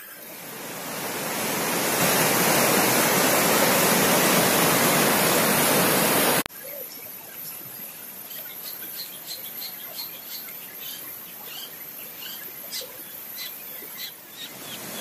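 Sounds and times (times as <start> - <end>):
rushing water: 0.0 - 15.0
small birds chirping: 6.6 - 15.0.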